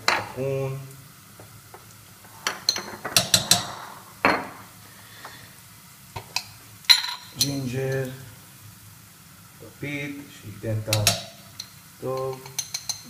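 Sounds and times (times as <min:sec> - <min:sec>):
metal spoon clinking against pot: 0:10.9 - 0:13.0.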